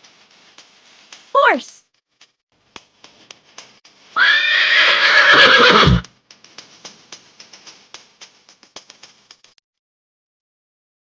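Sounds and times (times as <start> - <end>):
horse whinnying: 4.2 - 6.0.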